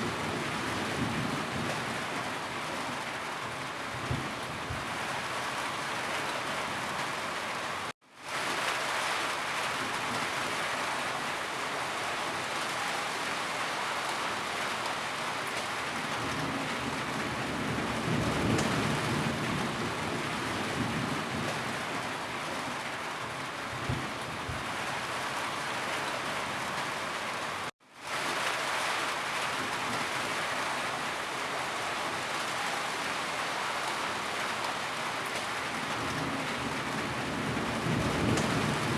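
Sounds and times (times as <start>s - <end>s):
thunder rumble: 35.8s - 38.9s.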